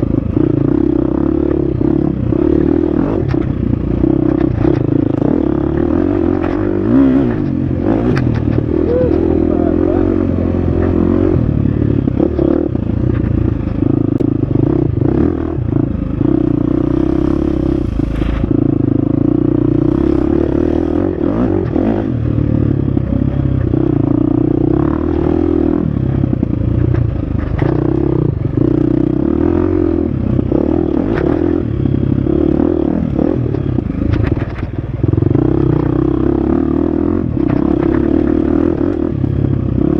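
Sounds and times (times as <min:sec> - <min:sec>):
dirt bike engine revving: 0:00.0 - 0:26.5, 0:27.1 - 0:33.9
clatters and knocks: 0:34.1 - 0:34.8.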